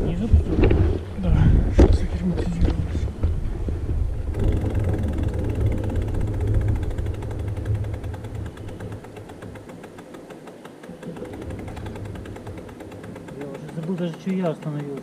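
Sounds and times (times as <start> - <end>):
wind rumbling on microphone: 0.0 - 14.2
freewheel hub ticking: 4.2 - 15.0.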